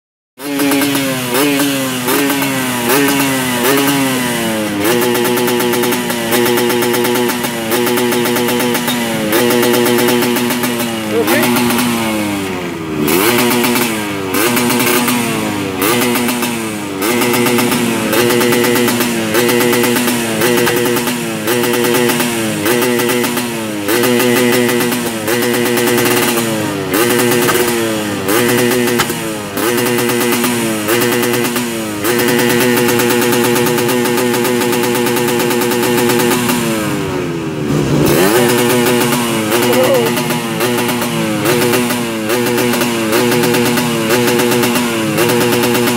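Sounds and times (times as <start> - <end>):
two-stroke motorcycle engine revving: 0.4 - 45.9.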